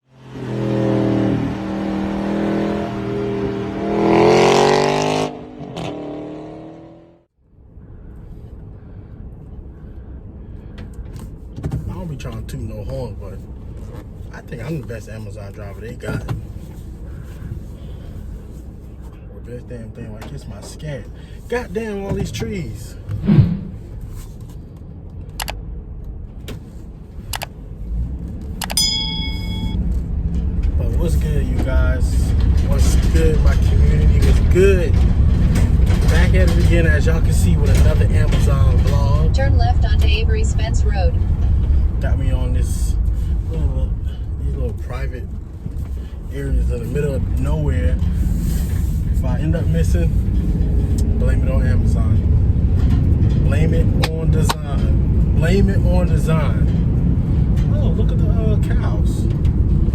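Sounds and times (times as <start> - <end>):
car engine revving: 0.1 - 7.3, 29.5 - 59.9
sharp clicks: 25.4 - 25.6
faint tone: 28.6 - 29.8
short electronic chime: 28.7 - 29.8.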